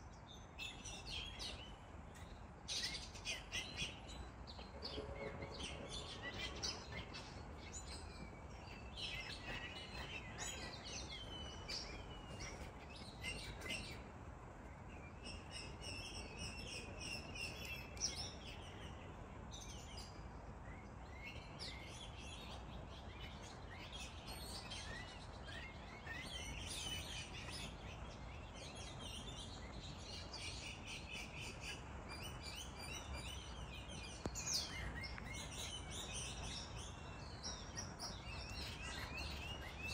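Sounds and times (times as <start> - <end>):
faint low background noise: 0.0 - 39.9
small birds chirping: 0.0 - 39.9.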